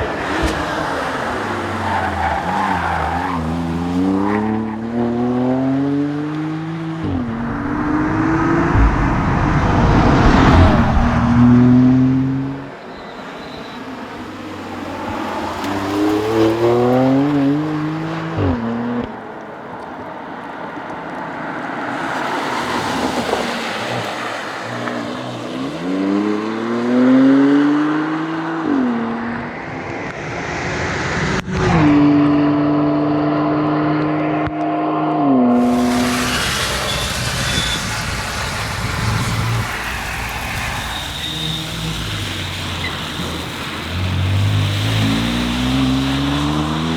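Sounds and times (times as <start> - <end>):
car engine accelerating hard: 0.0 - 12.7, 14.1 - 46.9
road noise: 0.0 - 46.9.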